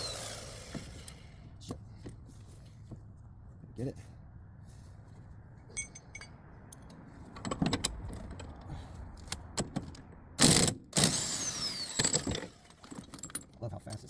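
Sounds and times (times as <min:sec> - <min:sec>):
impact wrench burst: 0:00.0 - 0:01.4, 0:10.4 - 0:12.8
metal tools clinking: 0:05.7 - 0:08.5, 0:12.0 - 0:14.0.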